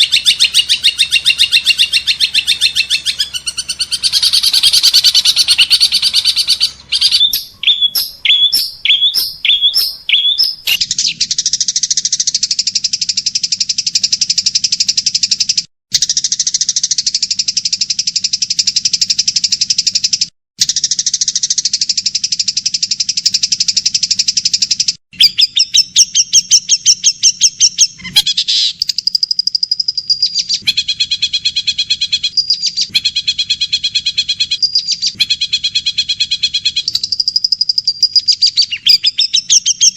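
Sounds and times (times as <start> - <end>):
songbird chirps and trills: 0.0 - 15.4, 34.5 - 39.9.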